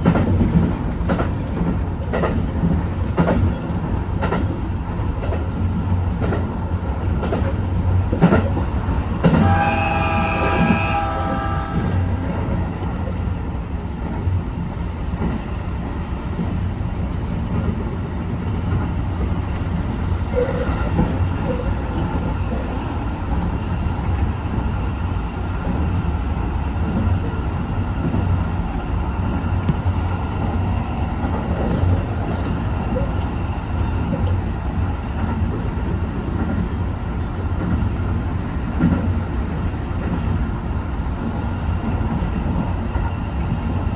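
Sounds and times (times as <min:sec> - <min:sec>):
rail clicks: 0:00.0 - 0:43.9
train rumbling along: 0:00.0 - 0:43.9
train horn blast: 0:09.2 - 0:12.6.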